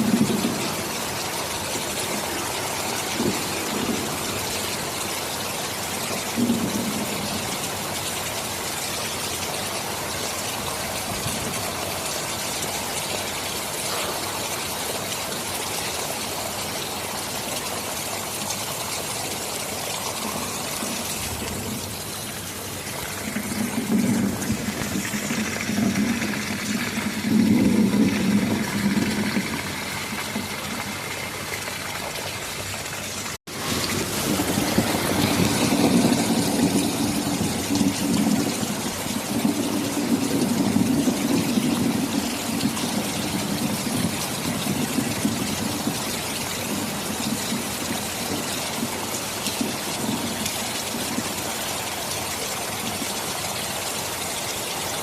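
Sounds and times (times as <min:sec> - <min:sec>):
distant thunder rumbling: 0:00.0 - 0:08.0, 0:19.8 - 0:32.3, 0:33.5 - 0:51.3
heavy rain: 0:00.0 - 0:55.0.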